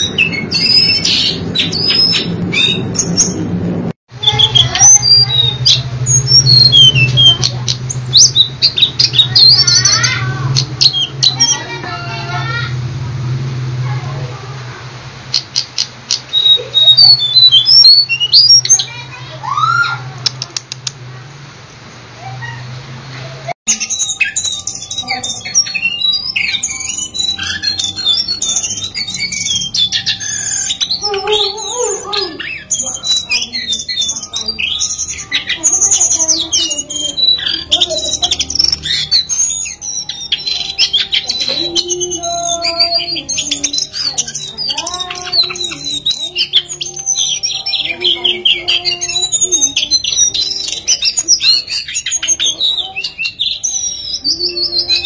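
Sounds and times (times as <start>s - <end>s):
bird singing: 0.0s - 11.8s, 15.4s - 20.0s, 23.7s - 55.0s.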